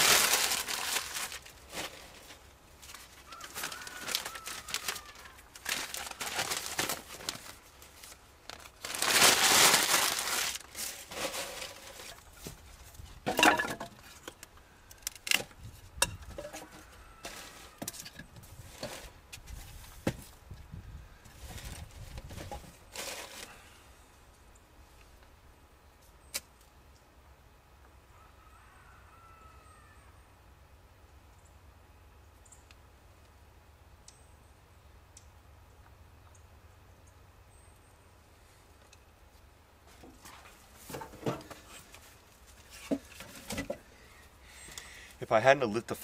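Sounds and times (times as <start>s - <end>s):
paper crumpling and rustling: 0.0s - 12.5s.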